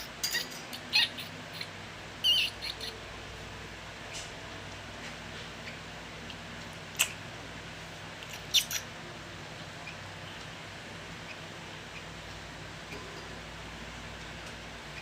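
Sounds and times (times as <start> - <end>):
nestling begging squeaks: 0.0 - 3.0
steady low hum: 0.0 - 15.0.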